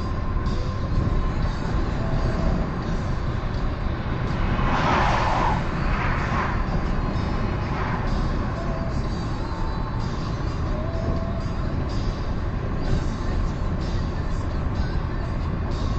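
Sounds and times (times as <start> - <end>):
car driving on highway: 0.0 - 15.9
rushing swell: 0.7 - 10.6.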